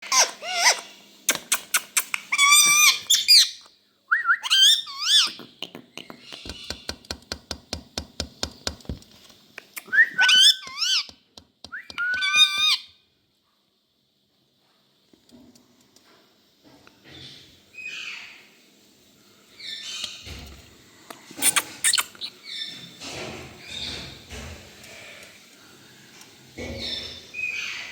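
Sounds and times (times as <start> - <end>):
parakeet squawking and whistling: 0.0 - 0.9, 2.3 - 5.4, 9.8 - 11.1, 11.7 - 12.9.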